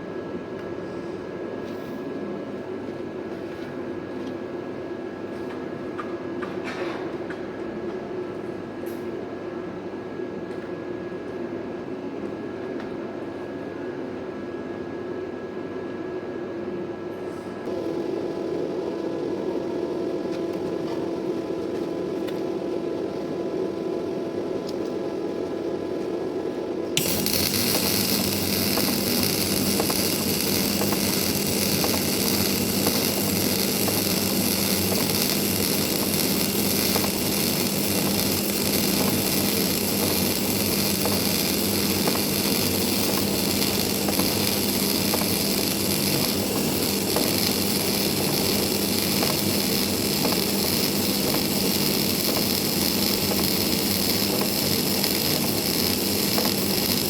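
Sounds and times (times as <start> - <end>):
machine hum: 17.7 - 57.0
welding arc crackling hiss: 27.0 - 57.0.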